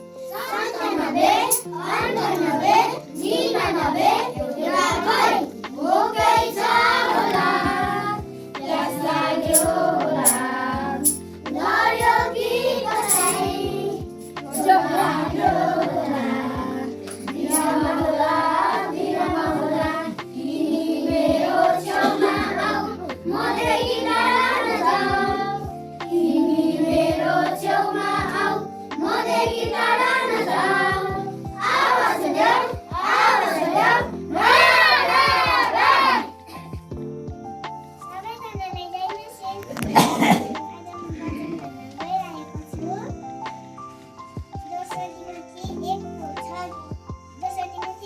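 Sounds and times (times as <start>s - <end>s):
children singing: 0.0s - 36.9s
instrumental accompaniment: 0.0s - 47.2s.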